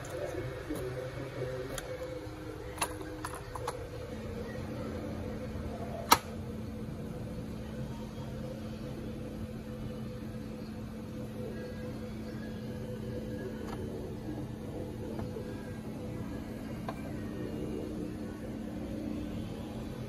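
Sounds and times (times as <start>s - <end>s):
steady low hum: 0.0s - 20.0s
sharp click: 6.0s - 6.4s.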